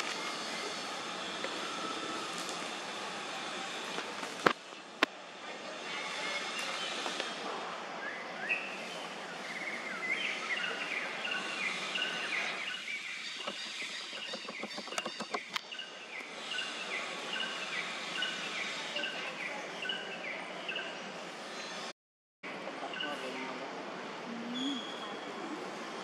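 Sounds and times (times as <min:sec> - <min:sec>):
small birds chirping: 0:08.5 - 0:21.0.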